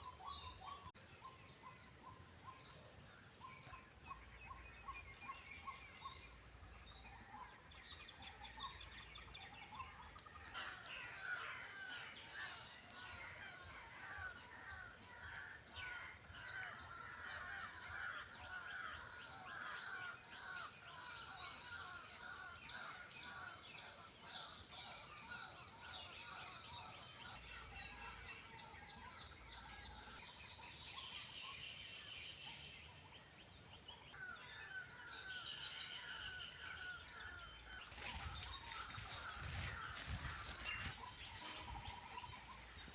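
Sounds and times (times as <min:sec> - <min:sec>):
birds chirping in chorus: 0:03.4 - 0:42.9.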